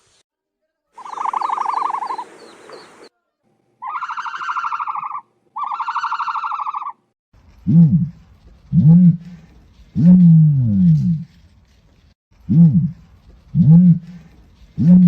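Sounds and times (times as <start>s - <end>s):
ostrich buzzy calls: 1.0s - 3.1s, 3.8s - 7.0s
faint high chirps: 1.0s - 3.2s.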